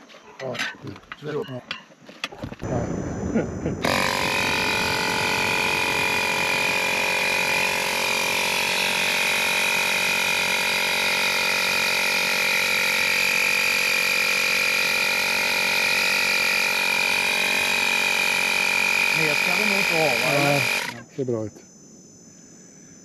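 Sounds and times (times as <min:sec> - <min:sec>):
electric tyre inflator humming: 0:03.8 - 0:21.0.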